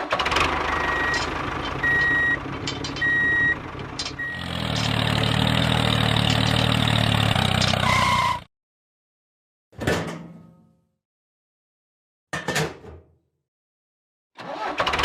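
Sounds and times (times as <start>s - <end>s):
truck engine running: 0.0s - 8.4s
reversing alarm beeping: 0.7s - 2.4s, 3.0s - 3.6s, 4.2s - 4.5s.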